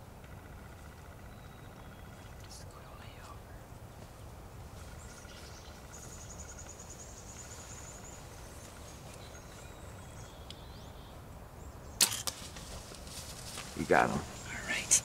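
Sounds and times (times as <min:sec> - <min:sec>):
faint bird chirps: 0:00.0 - 0:12.0
faint low rumble: 0:00.0 - 0:15.0.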